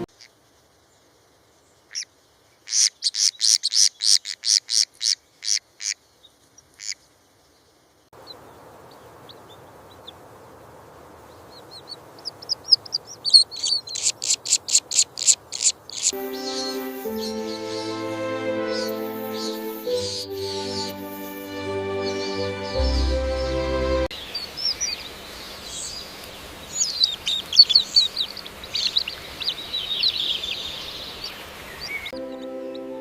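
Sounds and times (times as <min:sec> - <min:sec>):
faint background hiss: 0:00.0 - 0:03.7, 0:04.9 - 0:22.3
bird chirping: 0:11.3 - 0:33.0.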